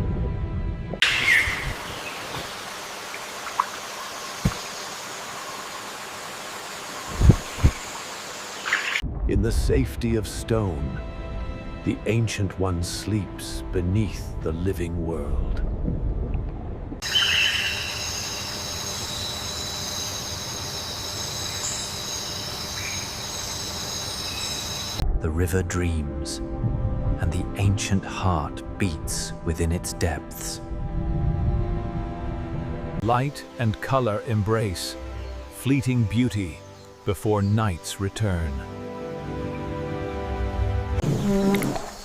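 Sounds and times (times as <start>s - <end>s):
stream water flowing: 1.0s - 9.0s
even hiss: 1.2s - 10.4s
low music: 9.0s - 17.0s, 25.0s - 41.2s
high-pitched insect drone: 17.0s - 25.0s.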